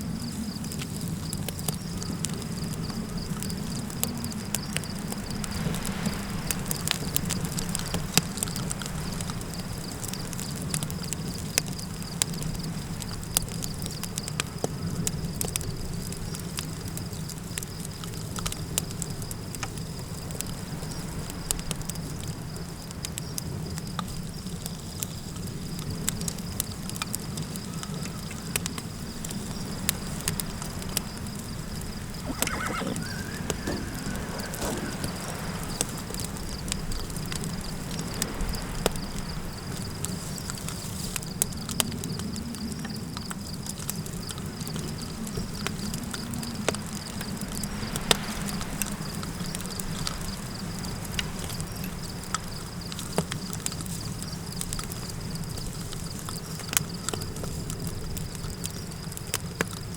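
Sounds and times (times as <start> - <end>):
campfire crackling: 0.0 - 59.9
wind rumble: 30.0 - 40.4
horse whinnying: 32.2 - 35.5.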